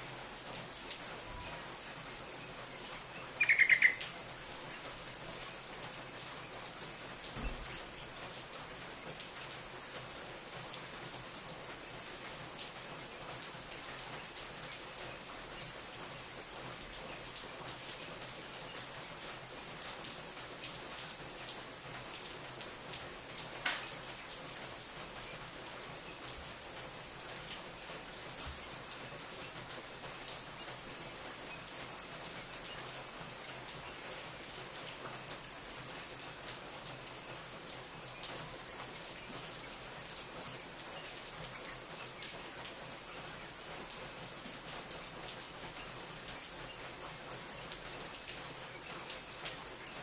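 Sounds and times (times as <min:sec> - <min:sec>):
rain-like hiss: 0:00.0 - 0:50.0
bird call: 0:03.0 - 0:04.2.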